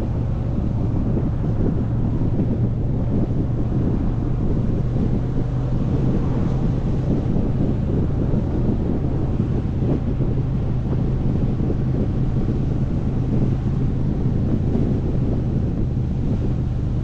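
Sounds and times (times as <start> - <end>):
motorcycle engine cruising: 0.0 - 17.0
wind rush on microphone: 0.0 - 17.0.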